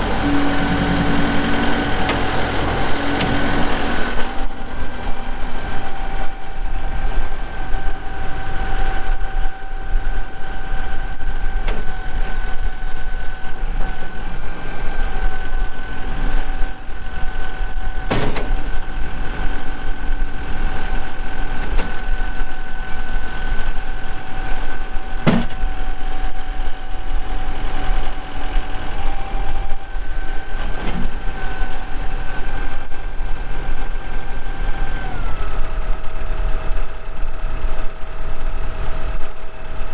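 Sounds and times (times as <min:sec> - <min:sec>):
constant whine: 0:00.0 - 0:39.9
tractor diesel engine running: 0:00.0 - 0:39.9
sharp clunks: 0:18.1 - 0:18.6, 0:25.2 - 0:25.7.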